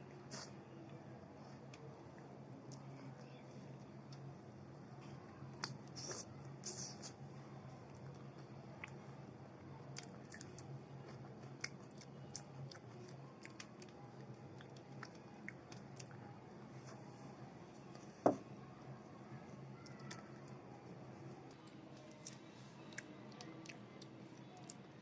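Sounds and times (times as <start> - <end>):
person chewing food: 9.9 - 16.2.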